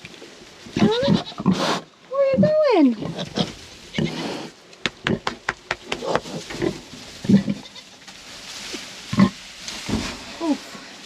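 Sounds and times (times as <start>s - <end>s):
sow grunting: 0.8s - 4.5s.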